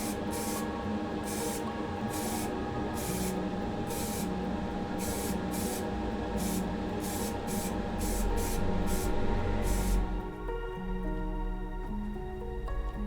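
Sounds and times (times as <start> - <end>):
spray paint hissing: 0.0 - 10.1
background music: 0.0 - 13.0.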